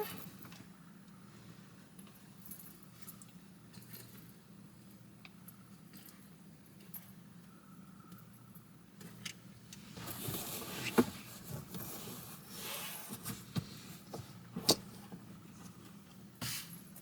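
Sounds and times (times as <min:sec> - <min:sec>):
rustling and handling noises: 0:09.9 - 0:17.0.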